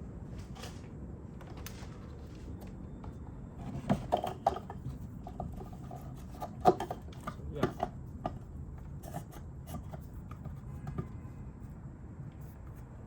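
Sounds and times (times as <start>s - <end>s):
parts clicking and knocking: 3.6s - 11.2s.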